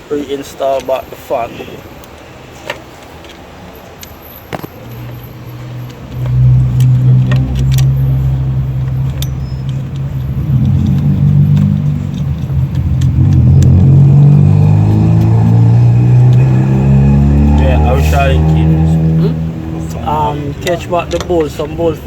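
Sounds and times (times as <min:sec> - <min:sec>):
car engine running: 0:05.9 - 0:22.0.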